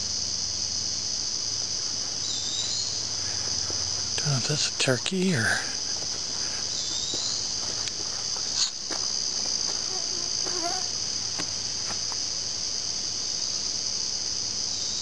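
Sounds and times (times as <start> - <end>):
high-pitched insect chorus: 0.0 - 15.0
faint wavering calls: 9.7 - 11.1.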